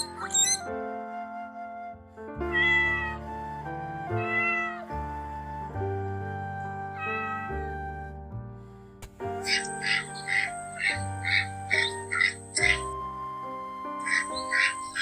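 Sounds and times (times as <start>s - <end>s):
background music: 0.0s - 15.0s
cat meowing: 2.5s - 3.2s, 4.2s - 4.9s, 7.0s - 7.7s.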